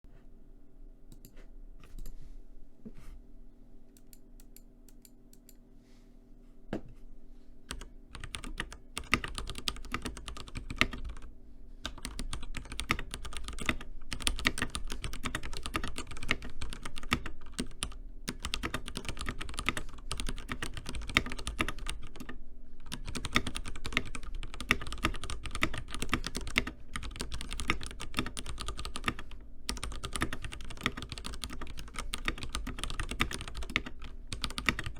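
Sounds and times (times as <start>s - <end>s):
typing on mechanical keyboard: 7.7s - 11.3s, 11.9s - 34.9s.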